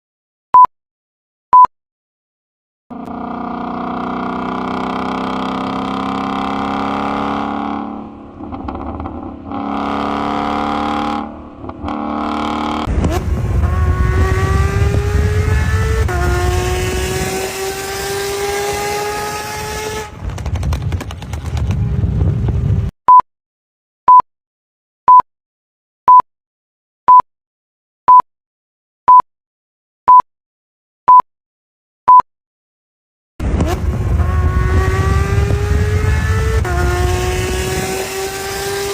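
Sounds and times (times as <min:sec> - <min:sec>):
car engine revving: 0:02.9 - 0:20.9, 0:33.4 - 0:38.9.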